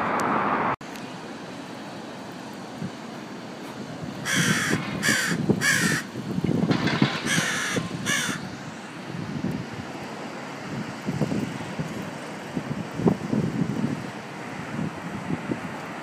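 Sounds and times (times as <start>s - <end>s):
bird cawing: 4.2s - 6.1s, 7.1s - 8.5s.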